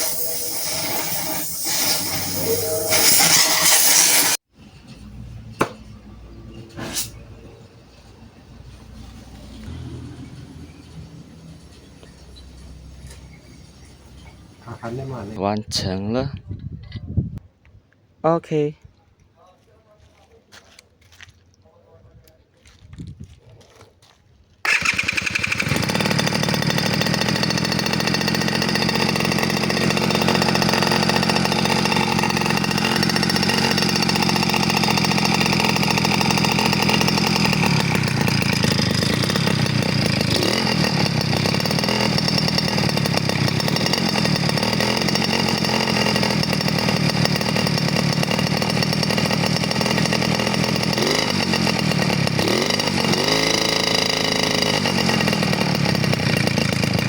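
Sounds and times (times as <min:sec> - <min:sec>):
small engine running loud and raspy: 0:00.0 - 0:04.4, 0:09.0 - 0:15.4, 0:24.6 - 0:57.0.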